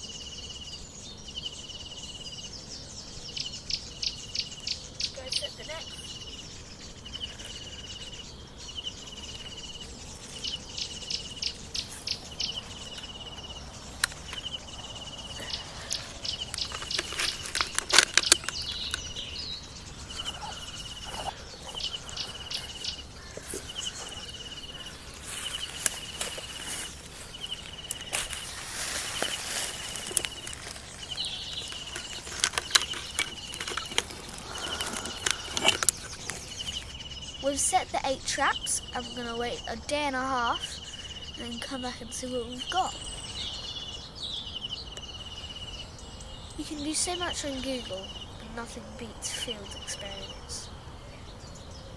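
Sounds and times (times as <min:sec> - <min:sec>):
clicks and rustles: 0:13.9 - 0:14.6, 0:15.4 - 0:19.3, 0:20.0 - 0:36.9.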